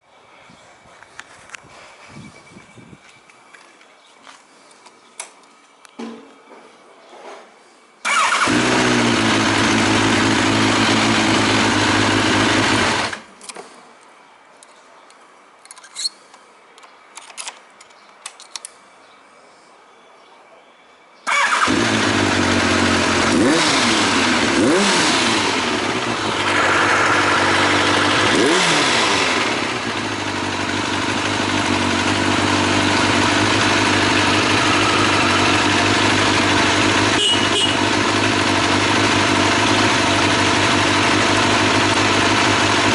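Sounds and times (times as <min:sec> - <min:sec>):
motorcycle engine starting and idling: 0:08.0 - 0:13.6, 0:21.3 - 0:42.9.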